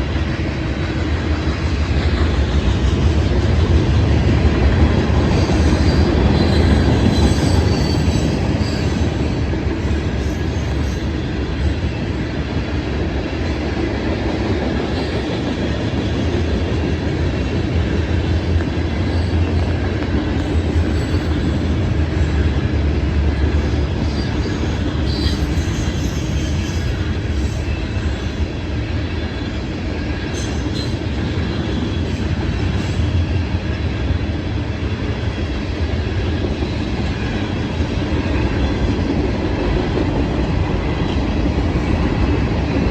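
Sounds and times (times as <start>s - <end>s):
freight train rumbling past: 0.0s - 42.9s
wheels clattering on rails: 0.9s - 28.2s
high-pitched wheel squeals: 5.4s - 11.2s, 24.1s - 27.0s.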